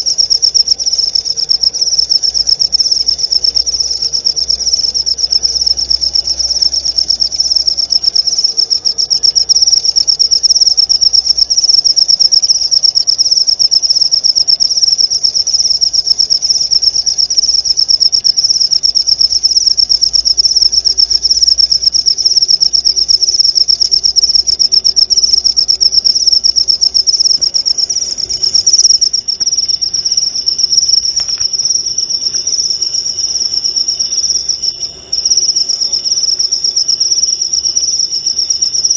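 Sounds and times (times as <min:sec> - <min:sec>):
cricket trilling: 0:00.0 - 0:38.9.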